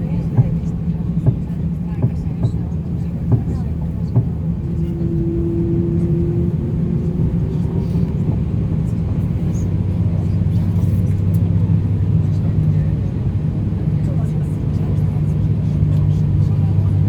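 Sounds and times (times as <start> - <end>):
aircraft engines droning: 0.0 - 17.0
steady hum note: 3.0 - 9.5.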